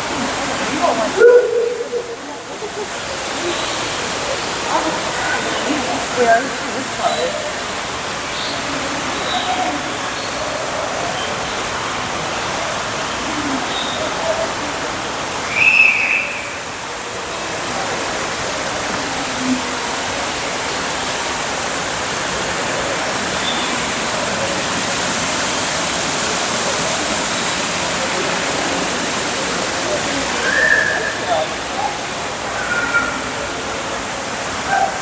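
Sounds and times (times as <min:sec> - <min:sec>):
indoor waterfall rushing: 0:00.0 - 0:35.0
bird calls: 0:15.5 - 0:16.6.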